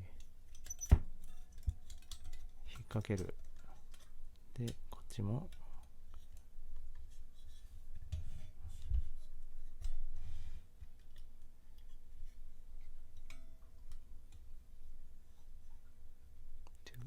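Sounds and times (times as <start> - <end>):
metal plates clicking and scraping: 0.2 - 6.4.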